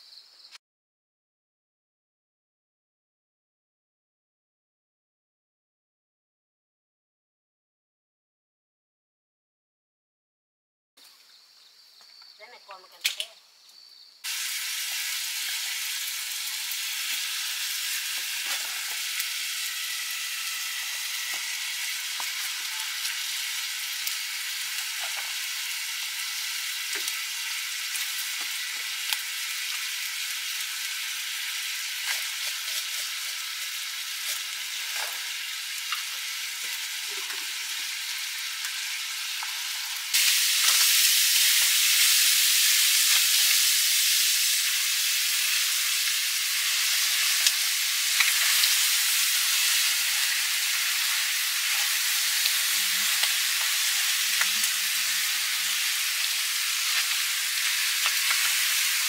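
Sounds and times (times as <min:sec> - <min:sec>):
food sizzling in a pan: 0:14.2 - 0:59.0.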